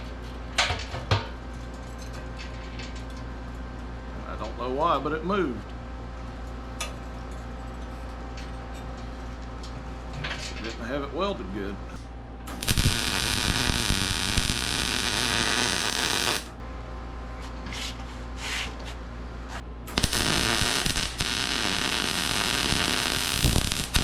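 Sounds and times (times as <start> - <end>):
electrical hum: 0.0 - 24.0
welding arc crackling: 12.5 - 16.6, 19.9 - 24.0.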